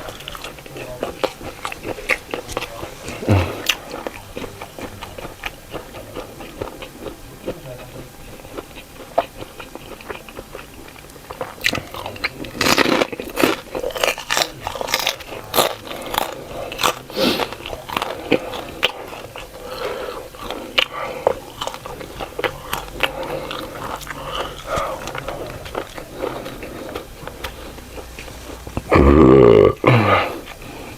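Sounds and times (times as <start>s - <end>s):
person chewing food: 0.0s - 30.9s
crisp food crunches: 8.6s - 19.6s.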